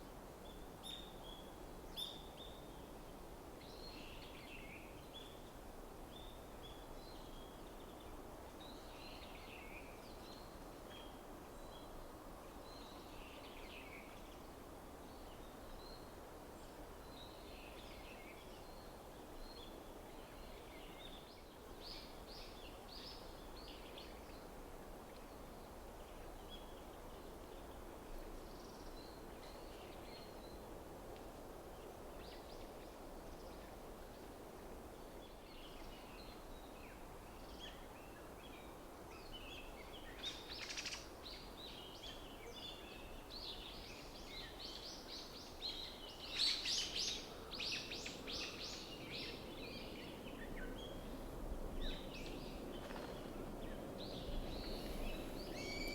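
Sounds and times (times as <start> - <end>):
songbirds chirping: 35.1 - 55.9.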